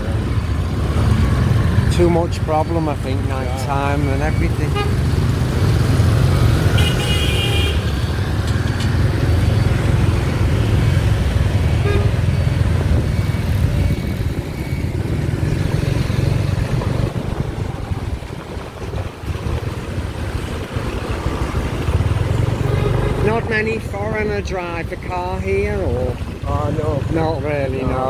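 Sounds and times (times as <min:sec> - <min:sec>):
motorbike engine and road noise: 0:00.0 - 0:28.0
wind rush: 0:12.6 - 0:22.5.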